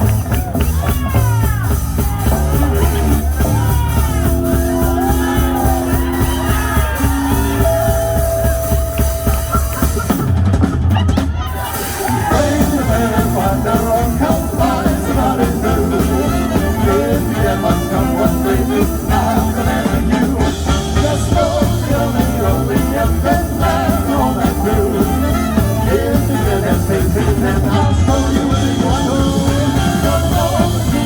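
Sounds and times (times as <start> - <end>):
swing band playing: 0.0 - 31.0
person singing: 12.1 - 31.0.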